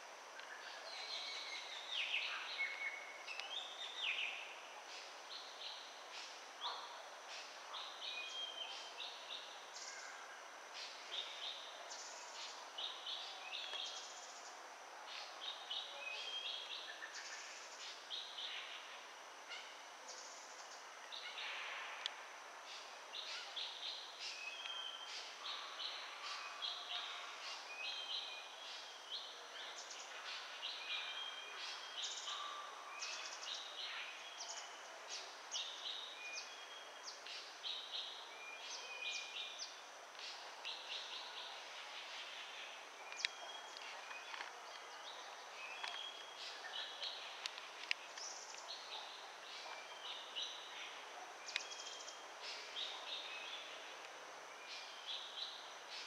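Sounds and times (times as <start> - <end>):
small birds chirping: 19.5 - 56.0.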